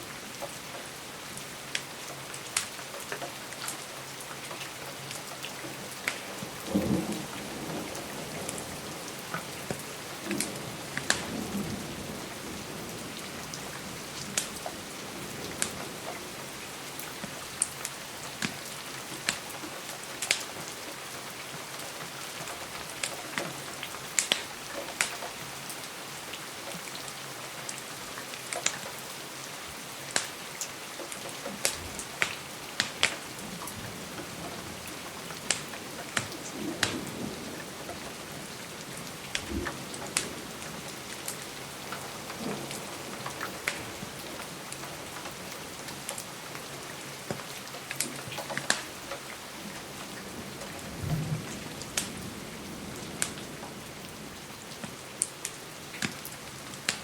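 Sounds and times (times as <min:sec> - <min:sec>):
steady rain: 0:00.0 - 0:57.0
wood fire crackling: 0:01.7 - 0:03.8, 0:09.1 - 0:11.9, 0:17.1 - 0:20.9, 0:22.4 - 0:25.1, 0:30.1 - 0:53.6, 0:54.7 - 0:57.0
low thunder rumbles: 0:06.3 - 0:16.6, 0:31.6 - 0:46.0, 0:49.6 - 0:54.6.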